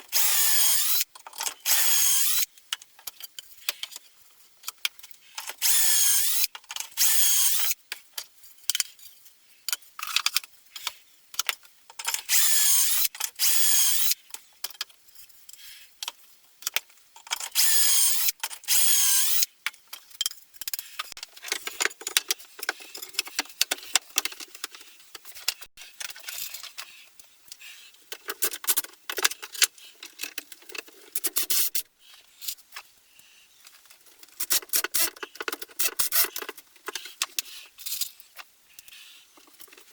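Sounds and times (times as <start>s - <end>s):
power drill running: 0.2s - 1.0s, 1.7s - 2.5s, 5.6s - 6.4s, 7.0s - 7.7s, 12.3s - 14.1s, 17.6s - 19.4s.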